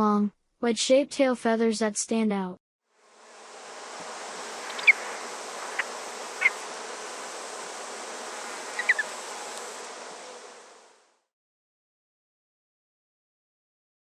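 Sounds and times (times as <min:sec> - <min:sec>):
insect buzzing: 0:02.9 - 0:11.3.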